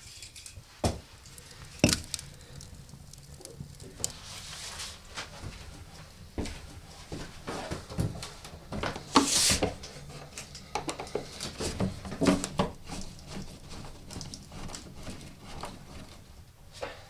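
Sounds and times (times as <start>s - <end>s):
objects knocking and clattering: 0.1s - 4.2s.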